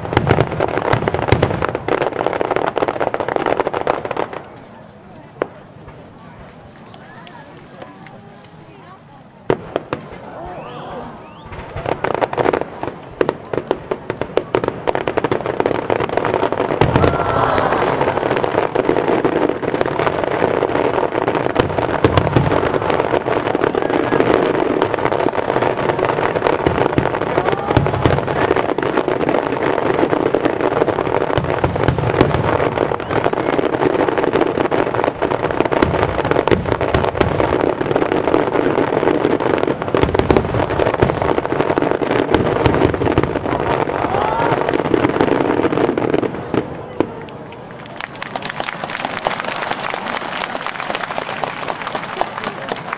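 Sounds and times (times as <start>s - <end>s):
fireworks bursts and crackling: 0.0s - 52.9s.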